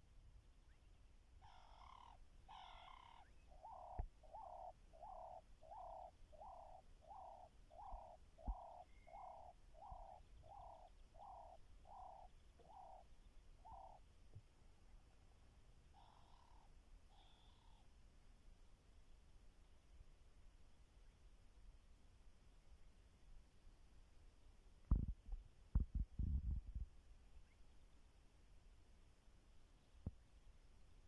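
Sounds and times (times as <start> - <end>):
bird hooting coo notes: 1.4 - 14.0, 16.0 - 17.9.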